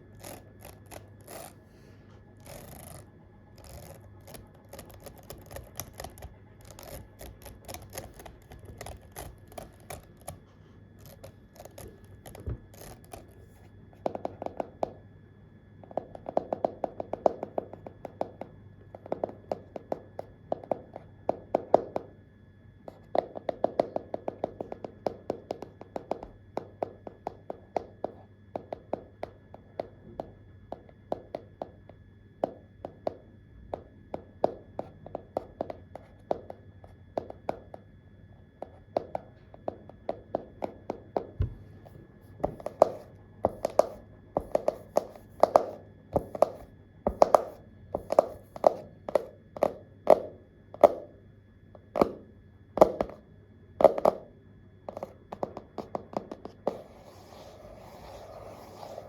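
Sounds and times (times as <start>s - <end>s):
keyboard typing: 2.4s - 10.4s, 11.0s - 13.6s.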